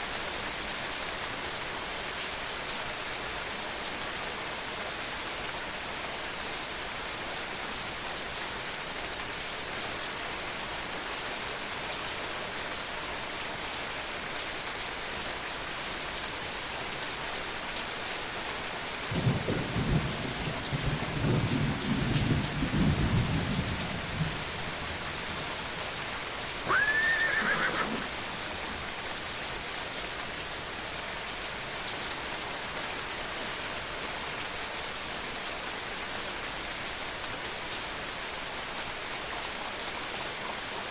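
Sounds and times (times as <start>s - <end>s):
steady rain falling: 0.0s - 40.9s
low rumble of thunder: 19.1s - 25.5s
horse whinnying: 26.6s - 28.3s.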